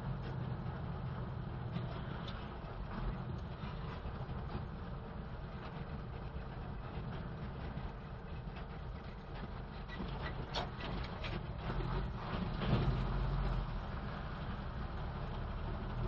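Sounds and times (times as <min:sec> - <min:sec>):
truck engine rumbling: 0:00.0 - 0:16.0
rattles and knocks: 0:01.7 - 0:13.6.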